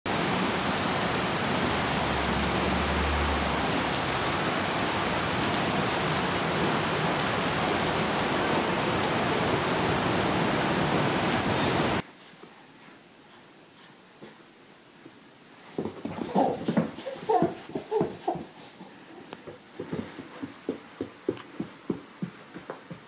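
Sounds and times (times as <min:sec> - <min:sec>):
rain on wet paving: 0:00.1 - 0:12.0.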